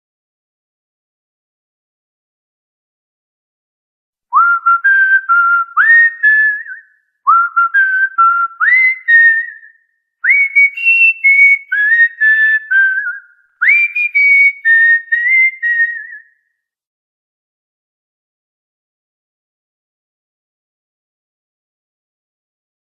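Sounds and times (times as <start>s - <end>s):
cockatiel whistling a melody: 4.4s - 16.4s.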